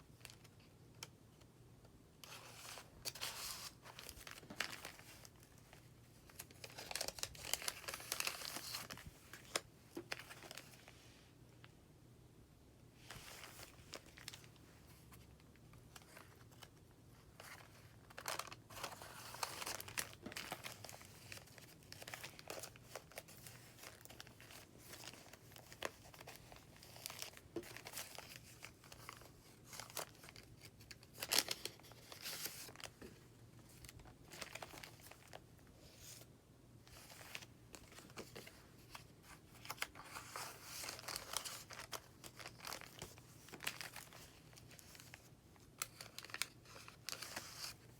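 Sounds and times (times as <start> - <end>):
faint steady hum: 0.0 - 47.9
paper pages rustling: 2.2 - 11.0, 17.3 - 33.0, 36.9 - 47.9.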